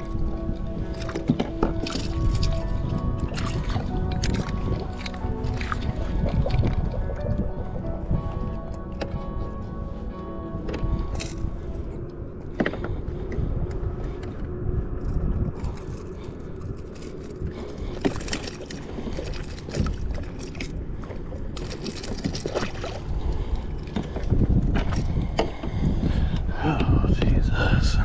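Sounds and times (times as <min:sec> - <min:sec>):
water splashes: 0:00.0 - 0:08.4, 0:17.0 - 0:25.1
steady low rumble: 0:00.0 - 0:28.0.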